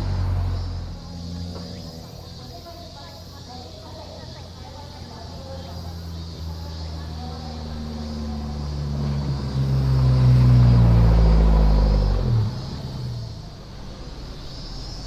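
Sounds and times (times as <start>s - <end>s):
car passing by: 0.0s - 2.9s, 5.9s - 15.0s.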